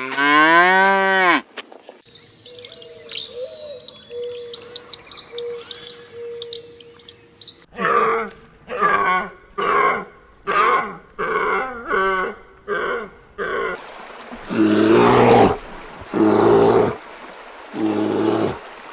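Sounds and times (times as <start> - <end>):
bird chirping: 1.8 - 7.7.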